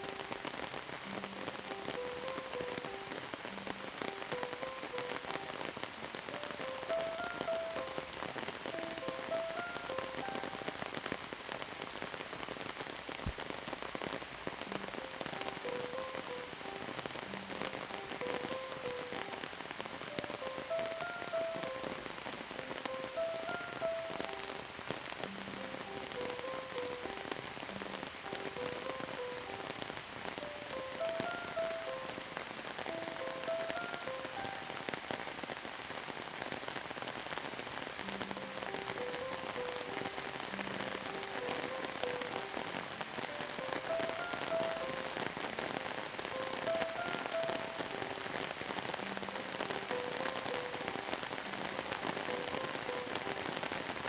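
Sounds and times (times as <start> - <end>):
soft slow melody: 0.0 - 11.6, 13.7 - 54.0
steady rain patter: 0.0 - 54.0.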